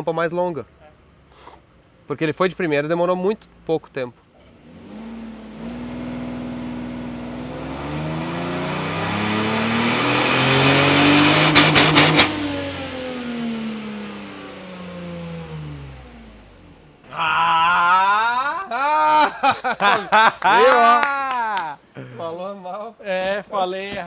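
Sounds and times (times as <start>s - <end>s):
car engine revving: 4.4s - 17.1s
sharp exhaust cracks: 4.5s - 15.8s.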